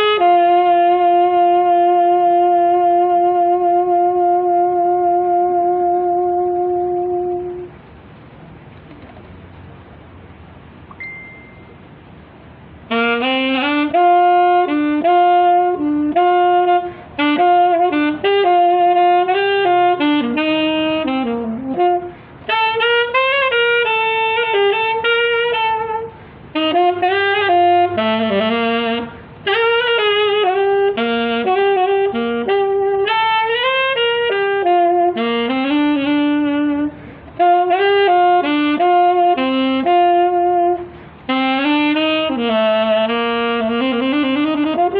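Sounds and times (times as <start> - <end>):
saxophone playing slow melody: 0.0 - 7.9, 11.8 - 44.9.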